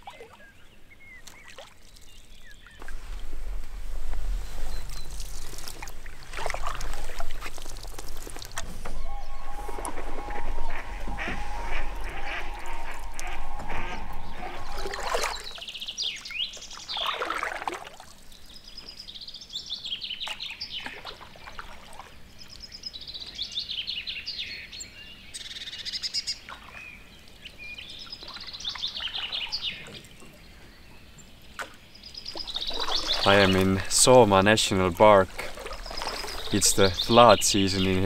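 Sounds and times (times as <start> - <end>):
wild birds calling: 0.0 - 17.6, 18.8 - 38.0
low steady hum: 2.8 - 15.6.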